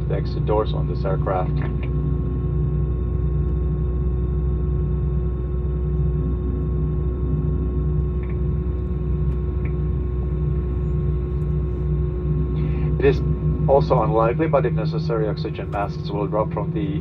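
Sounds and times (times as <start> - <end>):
airplane cabin low rumble: 0.0 - 17.0
steady hum: 0.0 - 17.0.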